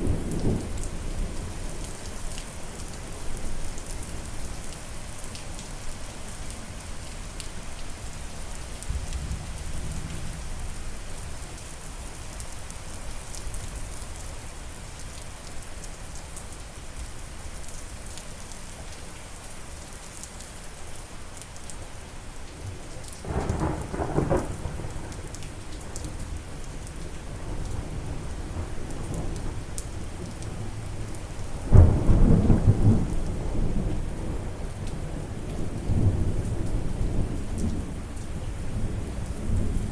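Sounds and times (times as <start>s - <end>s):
steady rain falling: 0.0s - 39.9s
loud thunderclap: 23.2s - 25.0s
thunder rumbling: 23.2s - 25.3s, 31.7s - 34.4s.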